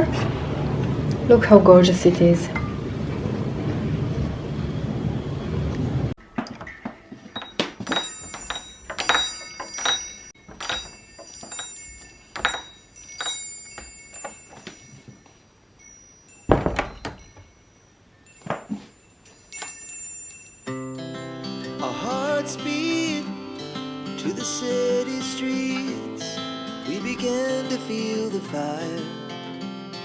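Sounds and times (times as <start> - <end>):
glass pieces clinking: 6.5 - 20.7.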